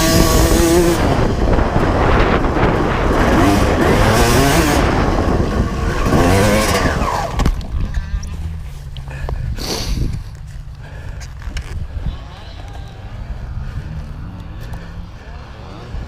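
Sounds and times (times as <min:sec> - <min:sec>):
two-stroke motorcycle engine revving: 0:00.0 - 0:08.6, 0:13.5 - 0:16.0
wind rushing: 0:00.0 - 0:08.6.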